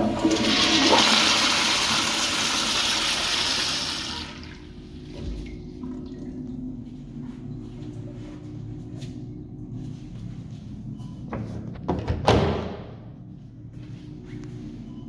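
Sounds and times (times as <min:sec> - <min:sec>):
toilet flushing: 0:00.0 - 0:07.0.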